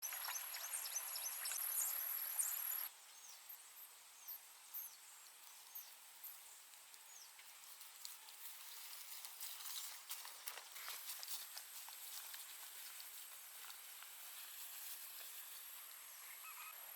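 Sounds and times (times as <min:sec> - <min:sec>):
birds chirping: 0:00.0 - 0:03.6, 0:16.0 - 0:16.9.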